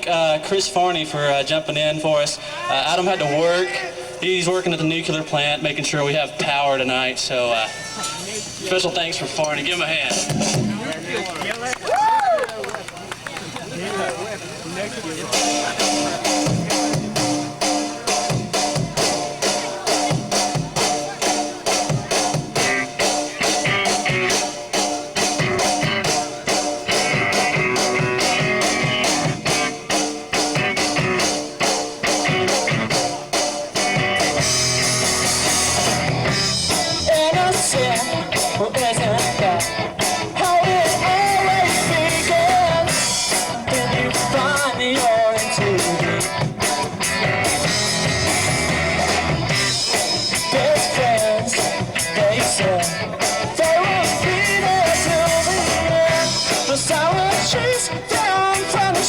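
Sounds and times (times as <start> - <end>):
drums keeping a steady beat: 0.0 - 59.0
bass guitar: 8.2 - 11.2, 13.1 - 59.0
electric guitar: 9.3 - 59.0
person singing: 36.6 - 46.8, 49.9 - 59.0.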